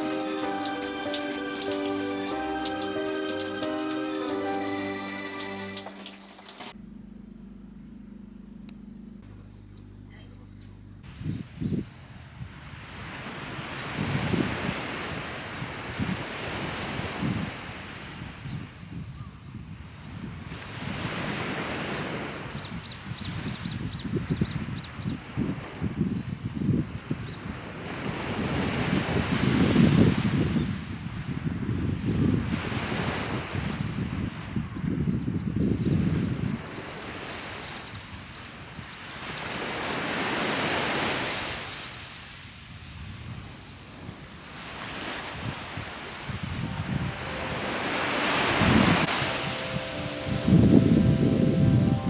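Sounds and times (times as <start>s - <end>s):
faint high chirps: 0.0s - 6.7s
sea waves washing in: 0.0s - 6.8s, 12.6s - 18.0s, 39.8s - 52.0s
wind gusting on microphone: 11.1s - 37.0s, 42.5s - 52.0s
wind buffeting microphone: 22.5s - 36.9s.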